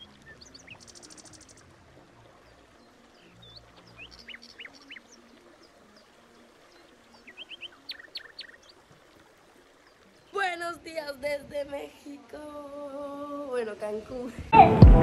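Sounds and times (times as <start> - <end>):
birds chirping faintly: 0.0 - 14.2.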